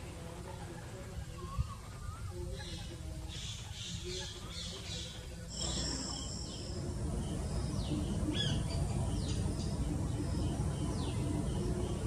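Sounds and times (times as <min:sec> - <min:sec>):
birds chirping: 0:00.1 - 0:12.0
low background rumble: 0:05.5 - 0:12.0.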